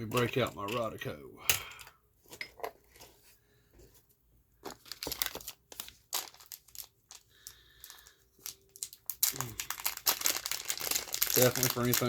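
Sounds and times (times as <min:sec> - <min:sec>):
wrapper crinkling: 0:04.6 - 0:12.0.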